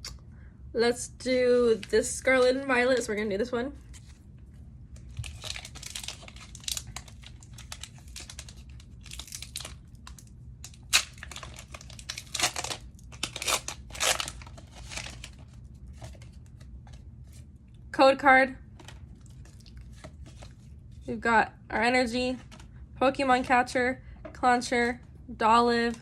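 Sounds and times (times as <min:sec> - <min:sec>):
foil wrapper crinkling: 0:05.0 - 0:16.7
foil wrapper ripping: 0:05.1 - 0:16.3.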